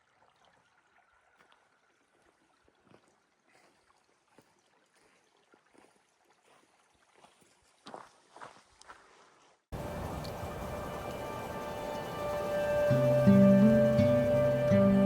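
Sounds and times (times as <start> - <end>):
faint hiss: 9.8 - 15.0.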